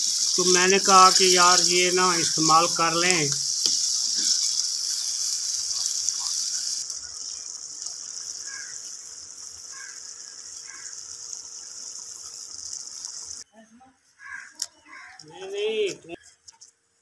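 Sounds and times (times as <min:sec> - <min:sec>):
meat sizzling in a pot: 0:00.0 - 0:13.5.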